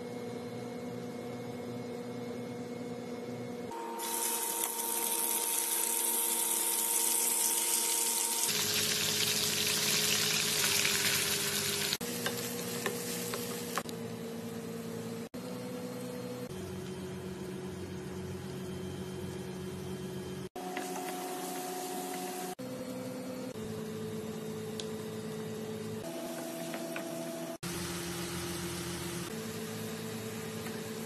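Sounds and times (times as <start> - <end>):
chicken sizzling in hot oil: 4.0 - 13.8.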